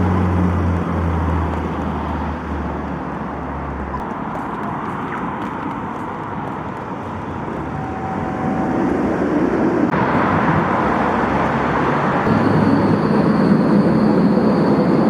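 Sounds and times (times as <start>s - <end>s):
traffic rumble: 0.0s - 15.0s
faint high whine: 12.3s - 15.0s.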